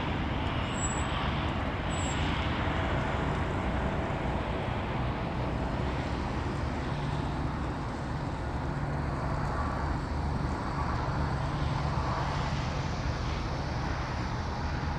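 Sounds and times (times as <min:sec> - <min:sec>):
faint high whine: 0:00.0 - 0:02.6
jet engines idling: 0:00.0 - 0:14.9.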